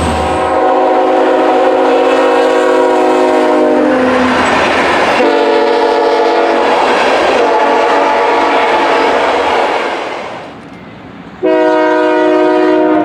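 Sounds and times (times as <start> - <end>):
locomotive air horn chord: 0.0 - 4.1, 5.2 - 6.7, 7.4 - 9.3, 11.4 - 13.0
moving train noise: 0.0 - 13.0.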